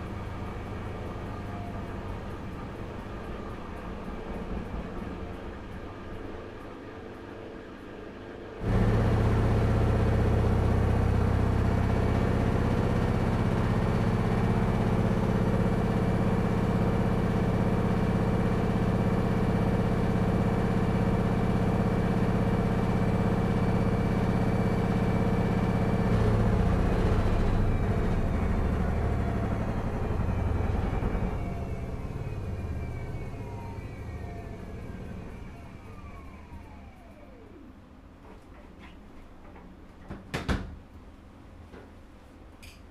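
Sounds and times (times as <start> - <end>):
washing machine running: 0.0 - 38.4.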